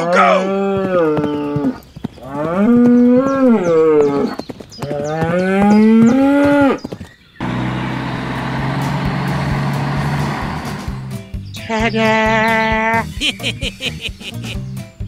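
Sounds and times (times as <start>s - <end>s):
cow mooing: 0.0s - 4.3s, 4.9s - 6.8s
tractor engine rumble: 7.4s - 14.0s.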